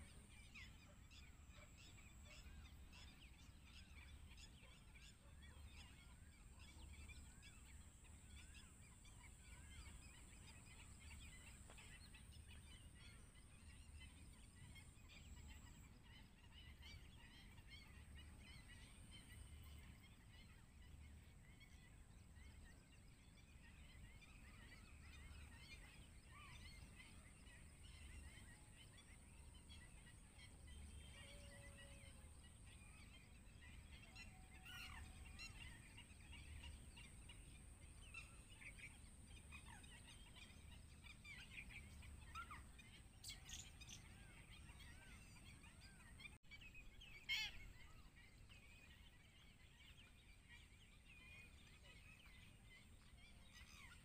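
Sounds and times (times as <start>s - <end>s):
bird chirps and calls: 23.5s - 54.0s.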